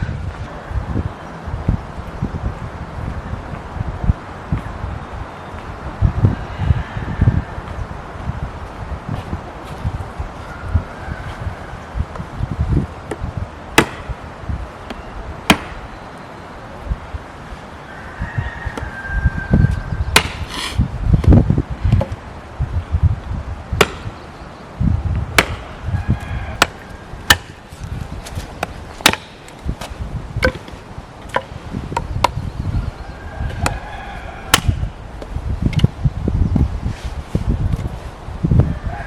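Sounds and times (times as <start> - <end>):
chopping knocks and thuds: 13.8 - 14.1, 15.5 - 15.8, 20.2 - 20.4, 23.8 - 24.1, 25.4 - 25.7, 26.6 - 27.6, 28.6 - 30.7, 34.5 - 34.8.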